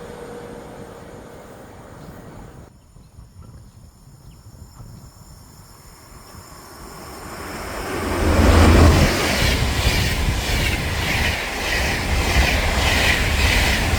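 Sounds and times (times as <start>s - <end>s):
passing train rumble and whine: 0.0s - 2.7s, 5.6s - 13.9s.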